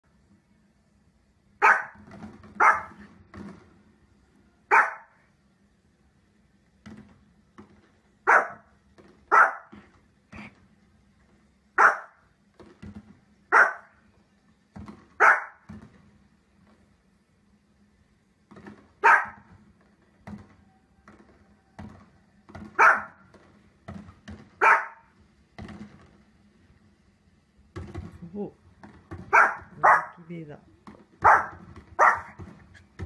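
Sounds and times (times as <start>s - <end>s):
small dog barking: 1.6s - 2.0s, 2.6s - 3.0s, 4.7s - 5.2s, 8.2s - 8.7s, 9.3s - 9.8s, 11.8s - 12.2s, 13.5s - 14.0s, 15.2s - 15.6s, 19.0s - 19.5s, 22.8s - 23.2s, 24.6s - 25.1s, 29.3s - 30.3s, 31.2s - 32.4s.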